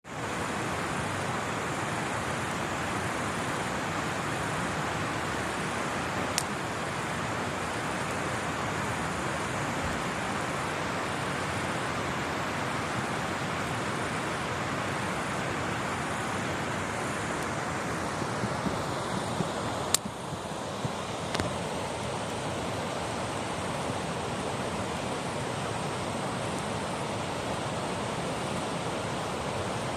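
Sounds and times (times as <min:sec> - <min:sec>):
campfire rushing noise: 0:00.1 - 0:29.9
fire crackling pops: 0:05.6 - 0:07.1, 0:16.4 - 0:27.9.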